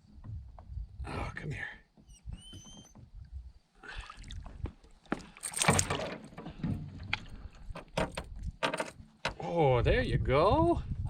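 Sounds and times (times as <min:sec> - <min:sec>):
knocks and clatter in a canoe: 0:00.0 - 0:01.0, 0:01.9 - 0:03.6, 0:04.4 - 0:09.5.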